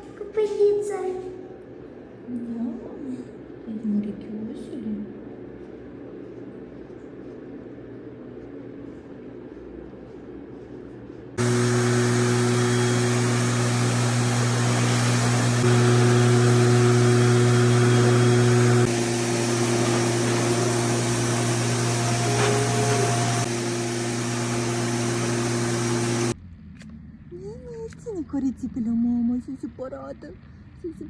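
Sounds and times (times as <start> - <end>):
blow dryer running: 11.4 - 26.4.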